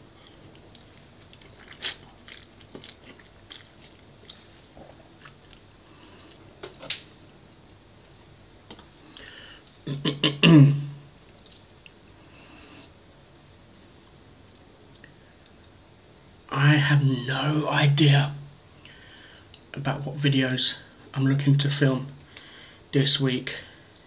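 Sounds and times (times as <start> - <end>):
person chewing food: 0.2 - 6.5, 8.7 - 9.9, 11.3 - 13.0.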